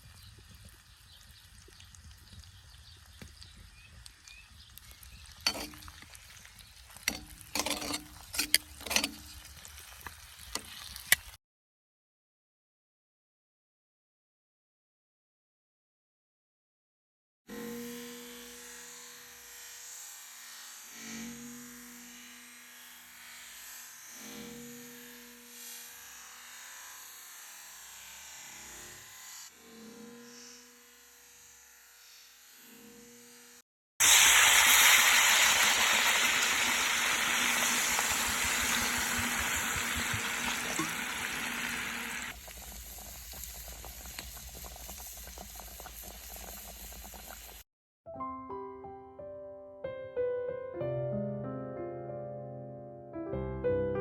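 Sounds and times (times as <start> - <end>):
food sizzling in pan: 0.0 - 11.4, 34.0 - 47.6.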